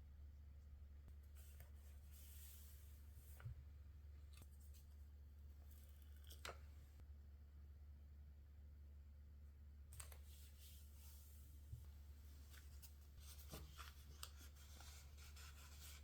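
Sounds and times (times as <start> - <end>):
low steady hum: 0.0 - 16.0
paper rustling: 12.3 - 16.0.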